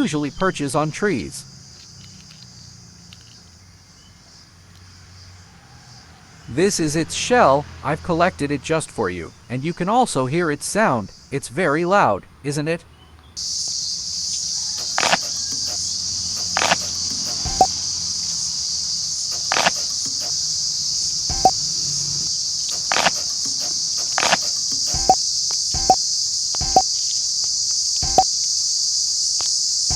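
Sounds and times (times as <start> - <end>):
cicada buzzing: 0.0 - 8.5, 13.4 - 29.9
short sharp clicks: 14.8 - 17.7, 22.6 - 25.2.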